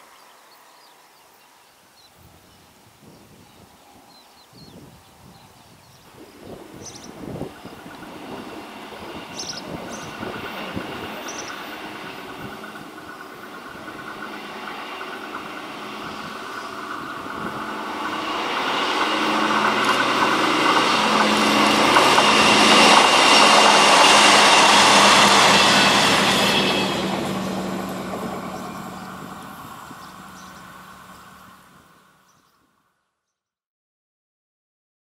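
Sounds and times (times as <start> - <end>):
railcar diesel engine: 1.8 - 33.0
rush of wheels on rail: 4.7 - 32.5.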